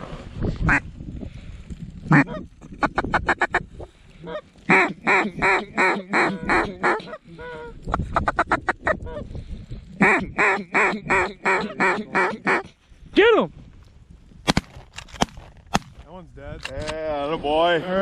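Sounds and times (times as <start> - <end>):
duck call quacks: 2.1 - 3.6, 4.2 - 9.2, 10.0 - 12.7
duck calls chattering: 2.1 - 3.6, 4.2 - 9.2, 10.0 - 12.8.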